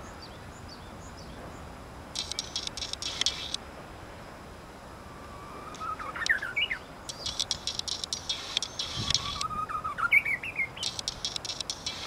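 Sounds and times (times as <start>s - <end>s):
warbler singing: 0.0s - 3.6s, 5.2s - 12.0s
rapid high chirps and clicks: 2.1s - 3.6s, 5.7s - 12.0s.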